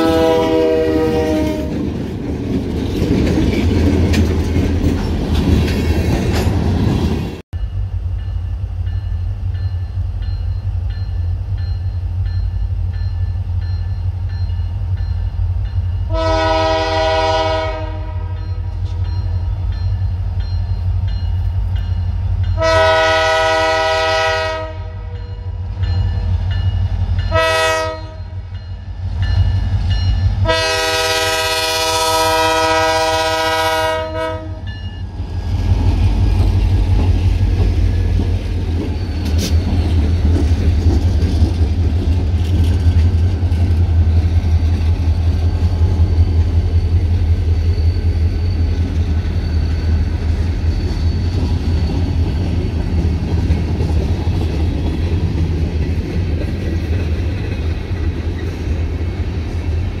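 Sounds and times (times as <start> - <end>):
locomotive air horn blasts: 0.0 - 1.8, 16.1 - 18.7, 22.6 - 25.2, 27.3 - 28.4, 30.4 - 34.7.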